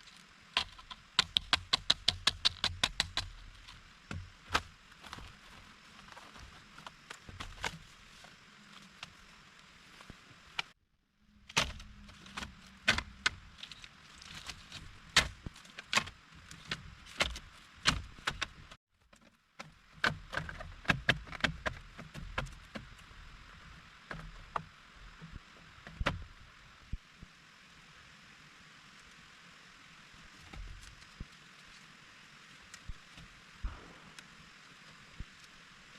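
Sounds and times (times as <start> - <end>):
faint steady hiss: 0.0 - 20.6, 21.2 - 35.9
sharp knocks and clicks: 0.6 - 4.7.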